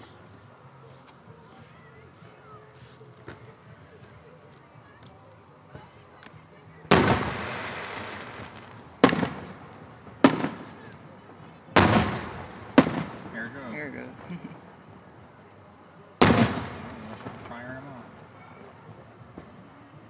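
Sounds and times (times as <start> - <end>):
faint crickets chirping: 0.0 - 20.0
firework shells booming: 6.9 - 14.7, 16.2 - 18.7.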